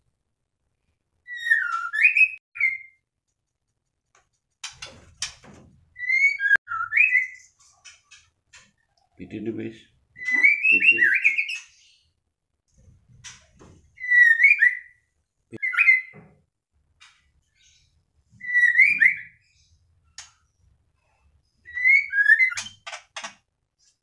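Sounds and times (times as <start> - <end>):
bird whistled calls: 1.3 - 3.0, 10.2 - 11.7, 14.0 - 15.0, 18.4 - 19.4, 21.7 - 22.8.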